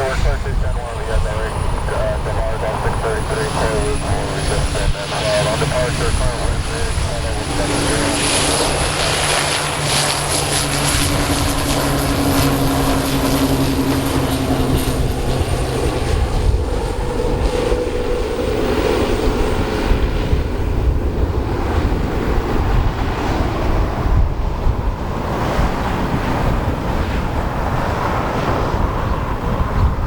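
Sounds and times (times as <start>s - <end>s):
turboprop engines droning: 0.0s - 30.0s
wind buffeting microphone: 0.0s - 30.0s.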